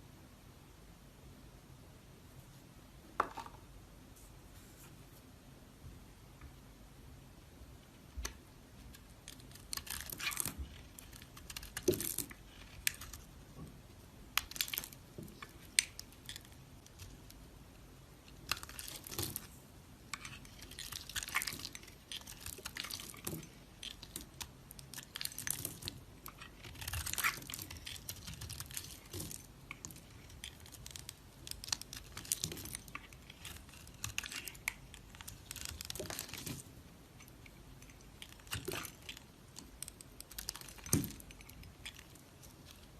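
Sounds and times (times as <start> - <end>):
knife cutting dry soap: 8.9 - 13.3.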